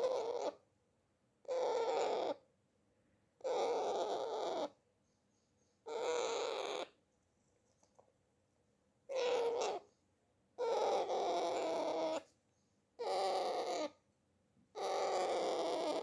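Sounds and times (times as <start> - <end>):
parrot making drawn-out calls: 0.0 - 0.6, 1.4 - 2.4, 3.4 - 4.8, 5.9 - 7.0, 9.1 - 9.9, 10.6 - 12.3, 13.0 - 14.0, 14.8 - 16.0.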